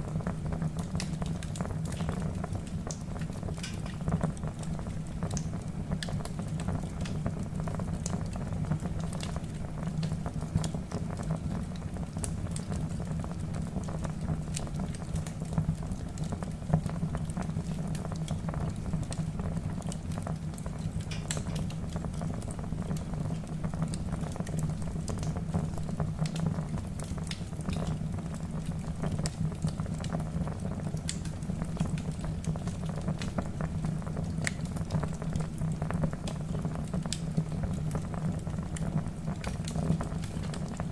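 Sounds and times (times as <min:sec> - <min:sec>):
logs crackling and popping: 0:00.3 - 0:40.9.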